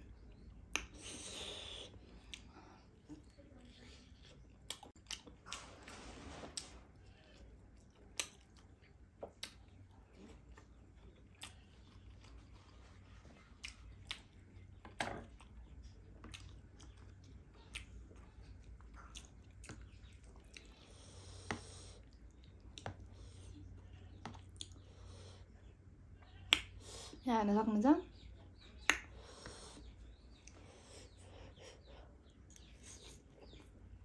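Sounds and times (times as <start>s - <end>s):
chewing soft egg: 0.0s - 27.2s, 28.2s - 34.0s
mouth clicks and smacks: 0.7s - 2.5s, 8.0s - 9.8s.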